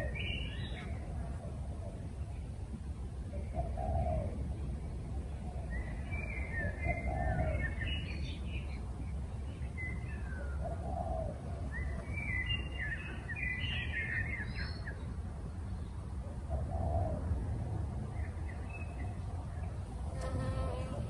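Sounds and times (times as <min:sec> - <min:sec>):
birds twittering: 0:00.0 - 0:02.5, 0:03.3 - 0:04.4, 0:05.1 - 0:15.1.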